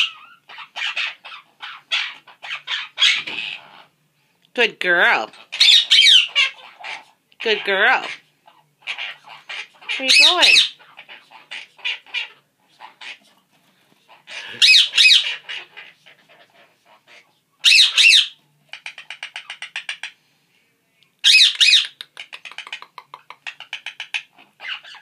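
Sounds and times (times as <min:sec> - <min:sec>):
parrots squawking: 0:00.0 - 0:04.0, 0:05.2 - 0:13.4, 0:14.1 - 0:20.2, 0:21.2 - 0:25.0
parrot rattling chatter: 0:14.1 - 0:20.2.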